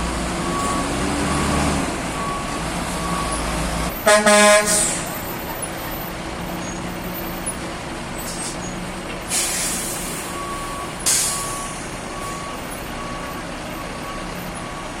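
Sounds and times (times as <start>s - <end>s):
diesel truck engine idling: 0.0s - 15.0s
reversing alarm beeping: 0.4s - 4.0s, 9.5s - 15.0s
air brake hiss: 4.7s - 5.1s, 9.3s - 10.4s, 11.0s - 11.8s.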